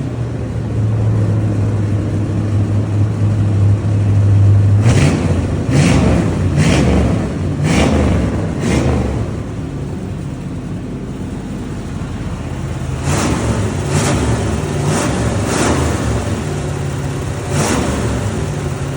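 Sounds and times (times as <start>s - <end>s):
car engine rumbling and revving: 0.0s - 18.9s.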